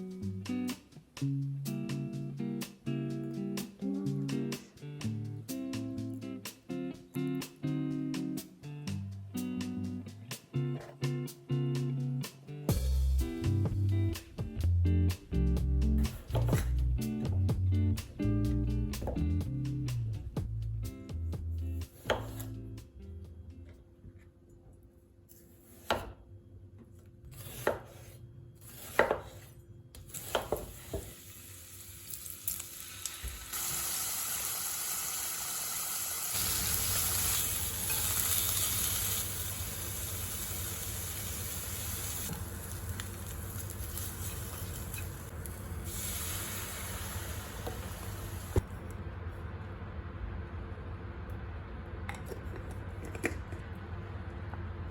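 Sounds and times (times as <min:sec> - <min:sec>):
food sizzling in a frying pan: 0:30.1 - 0:48.6.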